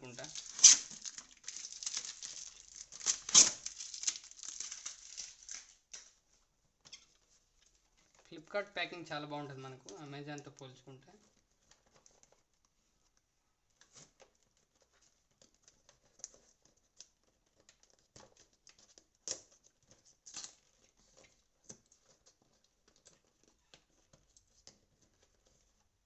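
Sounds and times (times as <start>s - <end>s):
stickers peeled off: 0.0s - 5.8s
cardboard box crackling: 0.0s - 5.9s.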